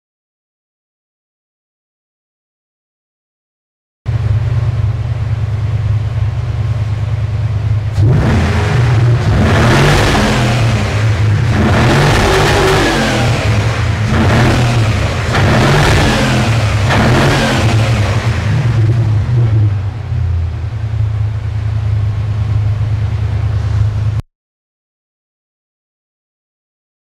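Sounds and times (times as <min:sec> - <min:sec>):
car engine idling and revving: 0:04.1 - 0:24.2.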